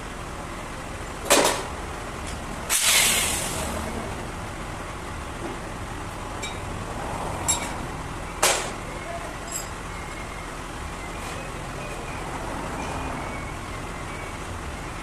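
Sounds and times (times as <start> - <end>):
short burst of hissing: 2.7 - 3.8.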